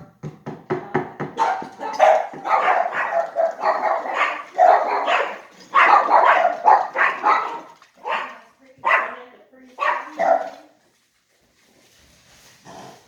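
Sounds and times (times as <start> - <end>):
dog barking: 1.4 - 9.2, 9.8 - 10.7.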